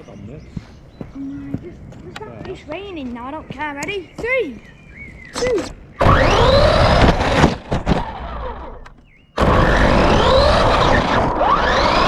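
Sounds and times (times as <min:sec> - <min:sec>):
rc car motor whining: 0:05.4 - 0:12.0
wheels rumbling on ground: 0:06.0 - 0:12.0.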